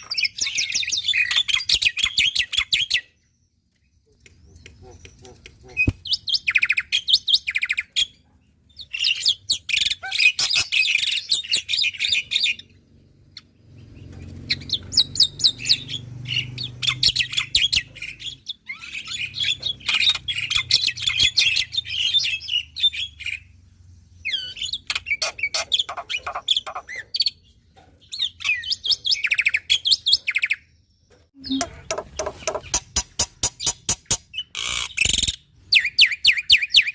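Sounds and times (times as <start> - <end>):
myna chattering and whistling: 31.4 - 32.7.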